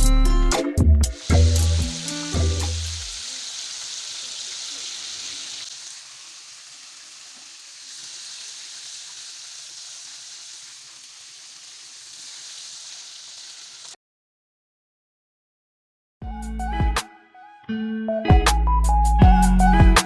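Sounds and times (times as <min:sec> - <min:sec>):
chicken sizzling in hot oil: 0:01.1 - 0:14.0.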